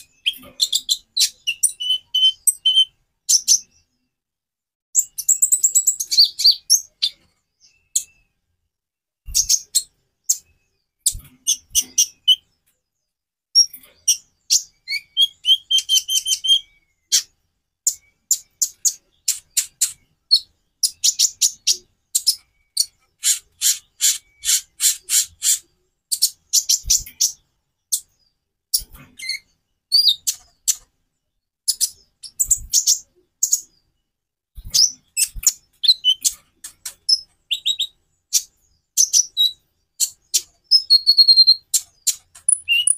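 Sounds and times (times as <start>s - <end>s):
sunbird singing high chips: 37.1s - 42.9s.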